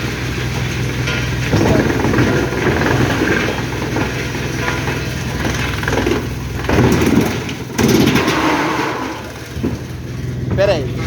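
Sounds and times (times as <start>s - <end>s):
heavy engine running: 0.0s - 11.0s
machinery working noise: 0.0s - 11.0s.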